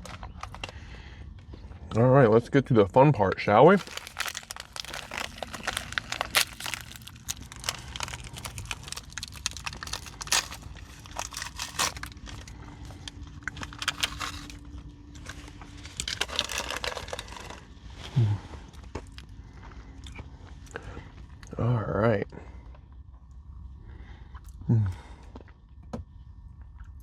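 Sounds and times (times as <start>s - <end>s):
wrappers crinkling: 3.7s - 17.6s.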